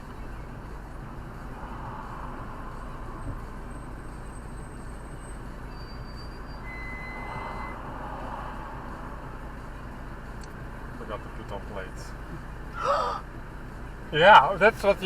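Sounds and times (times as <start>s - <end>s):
car road and engine noise: 0.0s - 15.0s
faint thin high tone: 6.6s - 7.8s.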